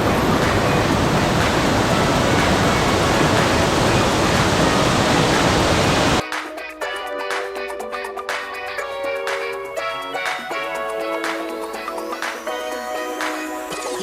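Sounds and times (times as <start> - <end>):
waterfall pouring: 0.0 - 6.2.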